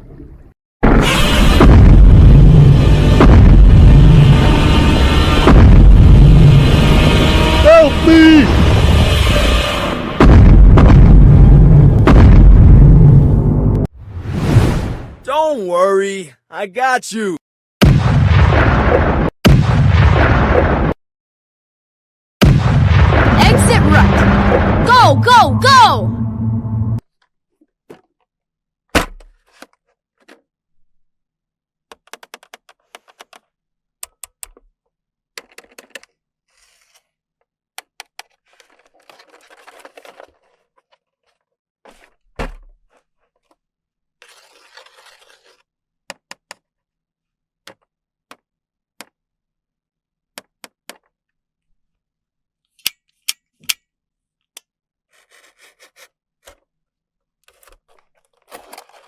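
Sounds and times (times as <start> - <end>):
toy thunks: 29.0 - 29.4
packaging rustling: 38.3 - 41.6.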